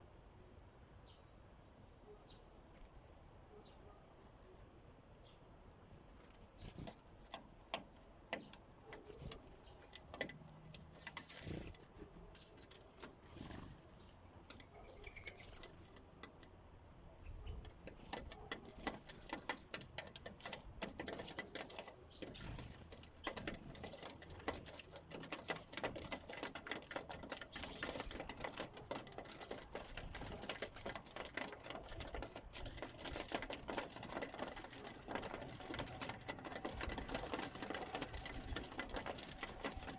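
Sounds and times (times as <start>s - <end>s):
beaks tapping on bird feeder: 6.8s - 16.6s, 17.3s - 39.9s.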